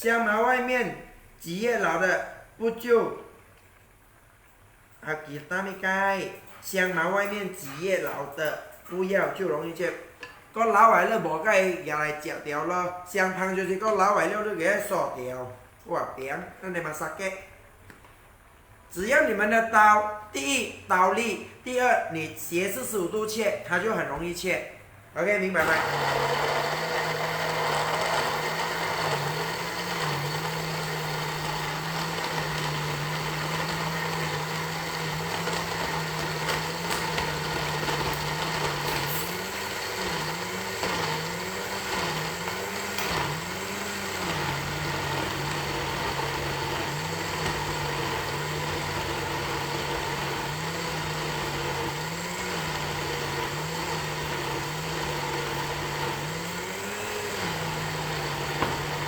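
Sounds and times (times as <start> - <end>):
electric blender grinding: 25.6 - 59.0.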